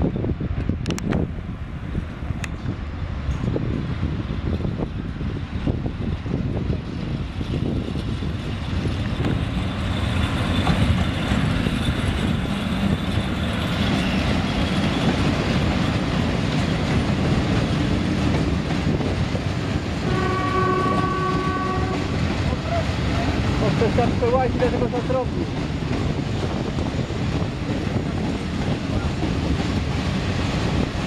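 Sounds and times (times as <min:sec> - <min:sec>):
freight train wheels on rails: 0:00.0 - 0:31.0
train horn: 0:20.0 - 0:22.2.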